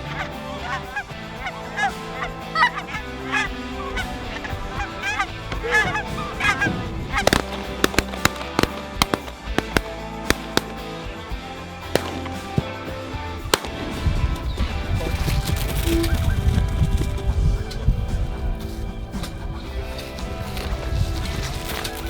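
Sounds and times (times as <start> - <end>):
sharp cracks: 0.0 - 16.0
geese honking: 0.0 - 17.8
background music: 0.0 - 22.0.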